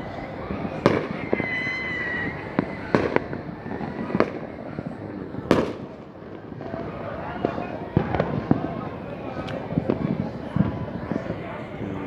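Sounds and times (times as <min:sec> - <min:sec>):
high whistling tone: 0:00.0 - 0:02.9
fireworks bursting with bangs: 0:00.0 - 0:12.0.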